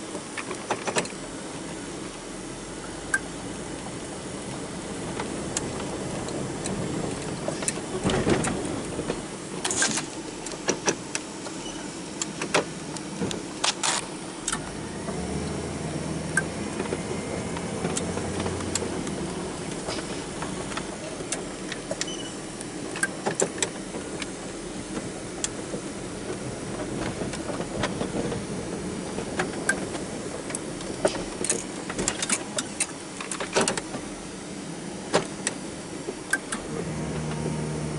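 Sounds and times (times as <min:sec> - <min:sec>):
sharp clicks and rattles: 0:16.4 - 0:24.4.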